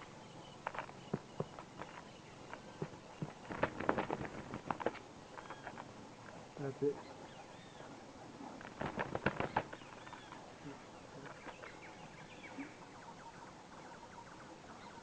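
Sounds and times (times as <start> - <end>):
birds chirping: 0.0 - 15.0
sharp clicks and rustling: 0.6 - 6.4, 8.5 - 10.5.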